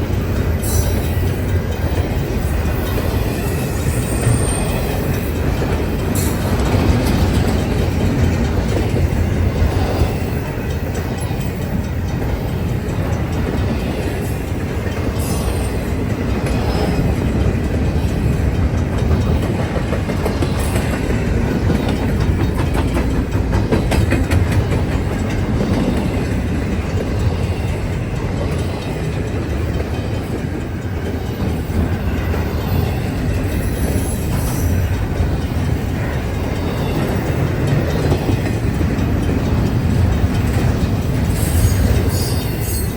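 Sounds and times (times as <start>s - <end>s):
train wheels rumbling on rail: 0.0s - 42.9s
wheel clicks over rail joints: 14.5s - 27.3s.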